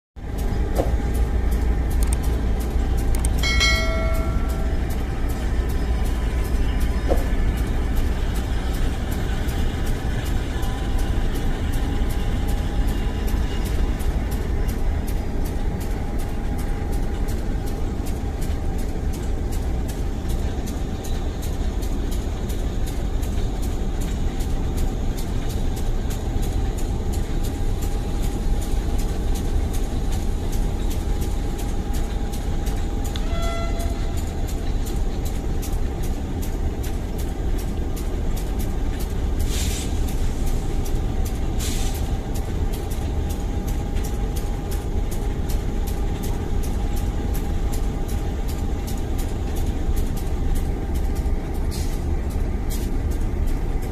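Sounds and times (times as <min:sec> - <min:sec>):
train wheels clattering: 0:00.2 - 0:53.9
thin steady squeal: 0:00.3 - 0:53.9
short train horn toot: 0:33.2 - 0:34.4.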